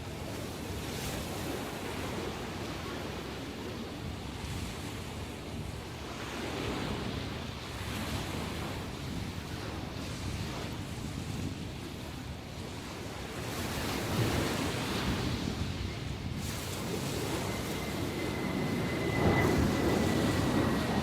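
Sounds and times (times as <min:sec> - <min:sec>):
wind rumbling on microphone: 0:00.0 - 0:21.0
waves breaking: 0:11.4 - 0:21.0.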